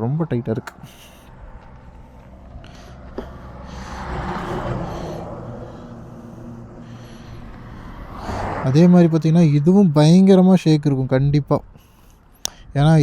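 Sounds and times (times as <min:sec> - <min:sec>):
low motor vehicle rumble: 0:00.0 - 0:12.8
sharp click: 0:00.6 - 0:00.9.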